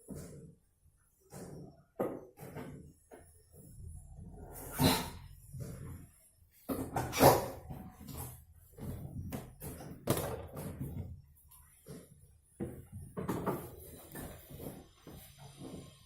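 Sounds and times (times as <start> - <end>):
knocks and thumps: 6.7 - 16.0.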